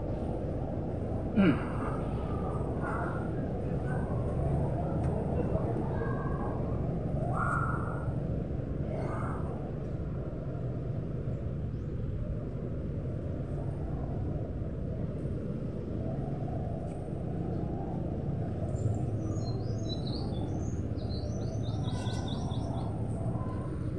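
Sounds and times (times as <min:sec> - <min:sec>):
low outdoor rumble: 0:00.0 - 0:23.9
small bird chirping: 0:19.3 - 0:22.9.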